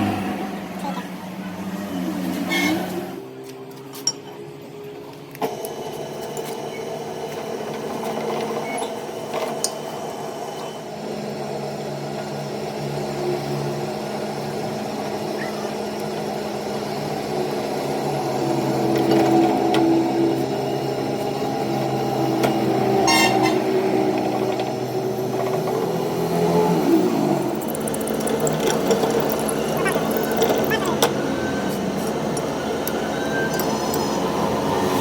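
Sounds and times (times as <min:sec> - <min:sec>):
workshop machine motor running: 0:24.0 - 0:35.0.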